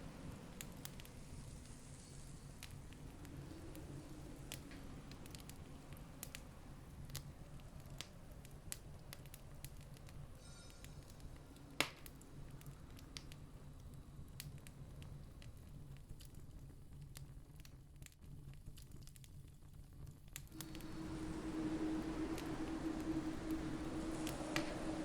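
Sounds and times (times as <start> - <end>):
campfire crackling and popping: 0.0 - 10.4, 11.0 - 25.0
faint low rumble: 0.0 - 17.9, 20.3 - 25.0.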